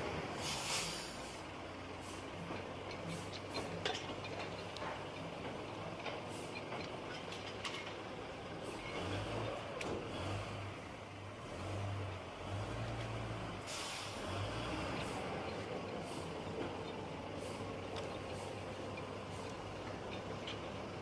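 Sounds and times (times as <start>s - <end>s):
large vehicle engine running: 0.0s - 21.0s
short burst of hiss: 0.4s - 1.4s.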